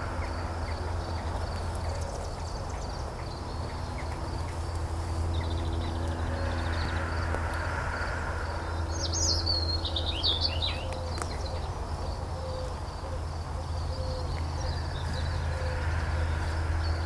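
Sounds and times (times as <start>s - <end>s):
faint insect trill: 0.0s - 17.0s
low outdoor rumble: 0.0s - 17.0s
songbird chirping and warbling: 0.0s - 17.0s.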